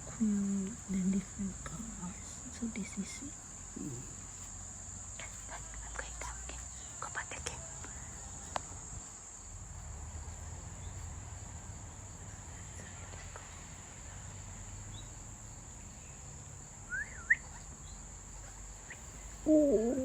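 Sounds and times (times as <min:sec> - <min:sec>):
insect chorus: 0:00.0 - 0:20.0
bird whistled call: 0:16.9 - 0:17.6.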